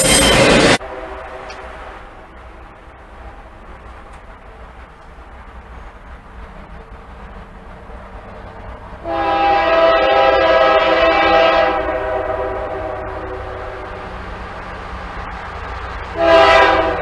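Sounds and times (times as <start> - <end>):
low locomotive rumble: 0.0 - 17.0
locomotive air horn blast: 0.8 - 1.8, 9.0 - 14.0, 16.1 - 17.0.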